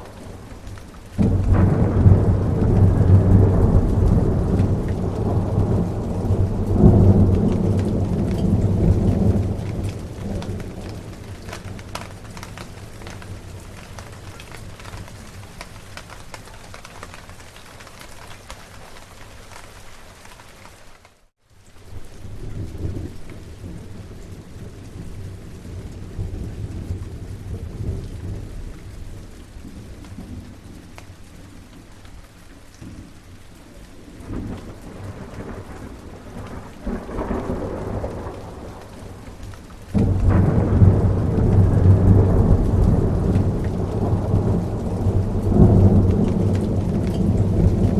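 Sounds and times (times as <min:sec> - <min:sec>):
rolling thunder: 0:00.0 - 0:15.7, 0:34.1 - 0:47.9
steady rain: 0:00.0 - 0:47.9.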